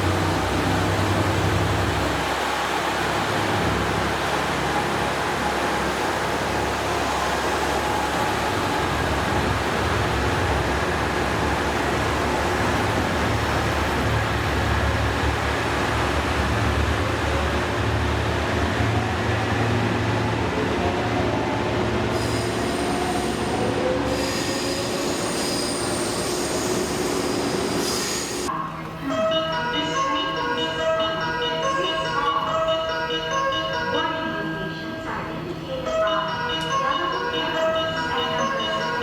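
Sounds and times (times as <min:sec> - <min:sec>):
high wheel squeal: 0:22.1 - 0:28.5.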